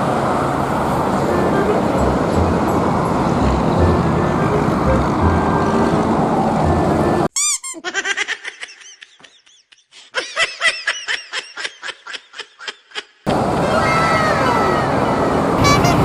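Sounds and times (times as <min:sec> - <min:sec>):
road traffic noise: 0:00.0 - 0:07.3, 0:13.3 - 0:16.0
baby giggling: 0:15.6 - 0:16.0.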